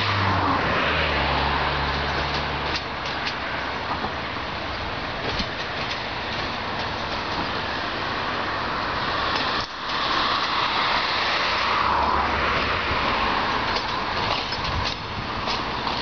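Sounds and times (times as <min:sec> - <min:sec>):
train running noise: 0:00.0 - 0:16.0.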